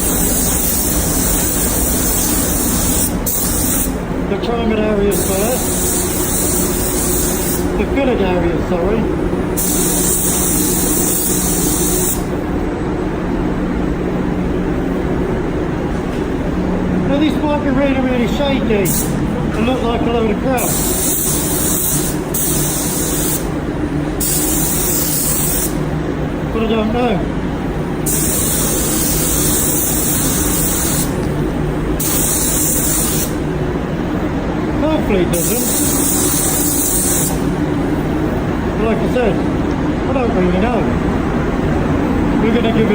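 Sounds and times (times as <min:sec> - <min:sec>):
paint spray gun hissing: 0:00.0 - 0:04.1, 0:05.1 - 0:07.8, 0:09.6 - 0:12.4, 0:18.8 - 0:19.2, 0:20.6 - 0:23.6, 0:24.2 - 0:25.8, 0:28.0 - 0:31.4, 0:32.0 - 0:33.5, 0:35.4 - 0:37.5
extraction fans droning: 0:00.0 - 0:42.9.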